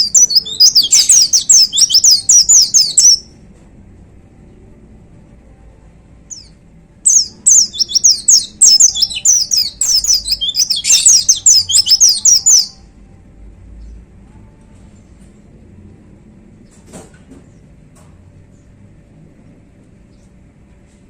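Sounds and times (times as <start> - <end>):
bird singing high slurred notes: 0.0 - 3.3, 7.1 - 12.8.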